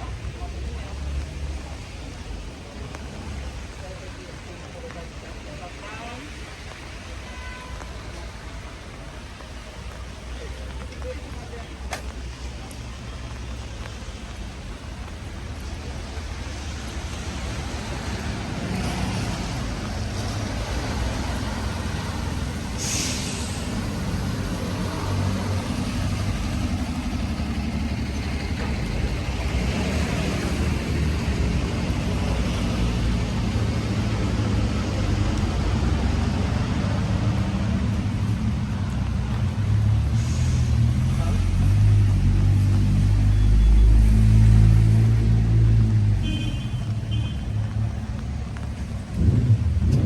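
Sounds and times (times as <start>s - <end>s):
heavy vehicle engine rumbling: 0.0s - 50.0s
short sharp hiss: 22.7s - 23.8s.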